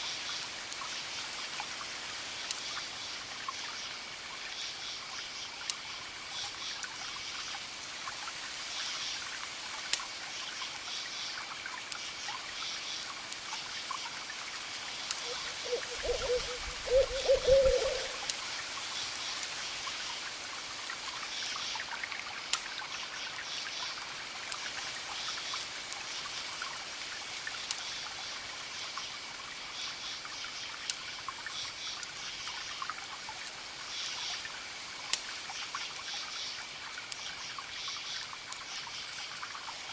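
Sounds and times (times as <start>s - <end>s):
campfire crackling and popping: 11.5s - 16.8s, 21.4s - 22.8s, 34.5s - 35.4s
crickets chirping: 14.8s - 19.4s
low hoots: 15.3s - 18.3s.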